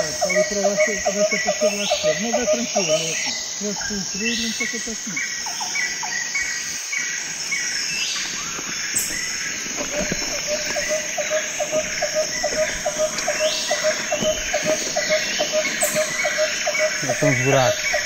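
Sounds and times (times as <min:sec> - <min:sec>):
lower evenly spaced chirp: 0:10.2 - 0:18.0.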